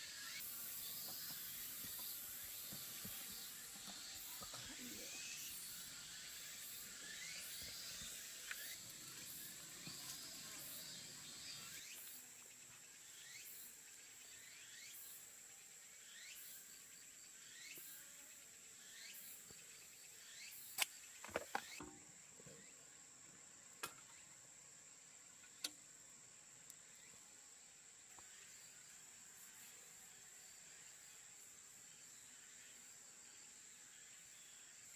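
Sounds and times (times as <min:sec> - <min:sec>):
insect trilling: 0:00.0 - 0:15.3.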